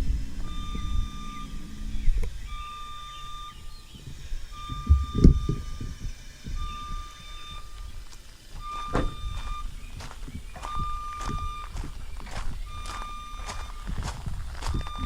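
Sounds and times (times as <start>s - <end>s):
lift motion alarm beeping: 0.0s - 15.0s
low drive hum: 0.0s - 15.0s
dull thumps: 4.0s - 15.0s.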